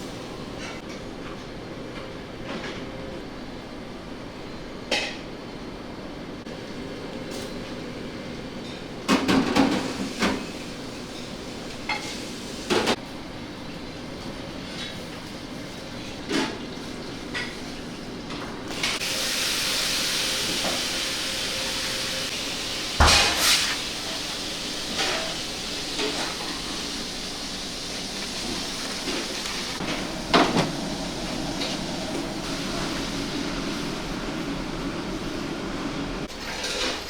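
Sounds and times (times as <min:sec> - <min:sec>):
kitchen knocks and clatter: 0:09.1 - 0:10.5.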